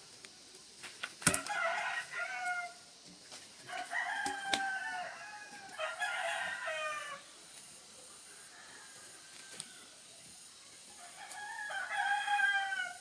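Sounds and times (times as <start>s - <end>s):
rooster crowing: 1.4s - 2.8s, 3.7s - 7.3s, 8.3s - 10.0s, 11.0s - 13.0s.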